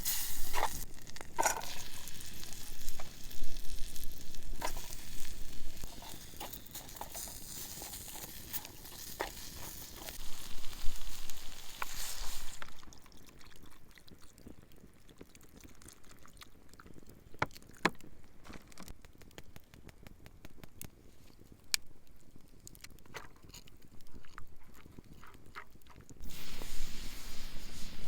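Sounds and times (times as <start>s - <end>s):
steak grilling on hot stone: 0.0s - 13.1s, 26.2s - 28.0s
campfire pops and crackles: 0.0s - 24.1s, 26.0s - 28.0s.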